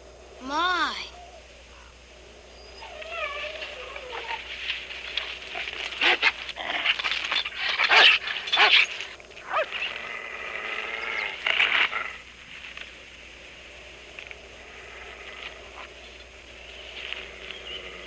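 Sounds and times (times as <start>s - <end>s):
dog whimpering and yelping: 2.6s - 4.5s.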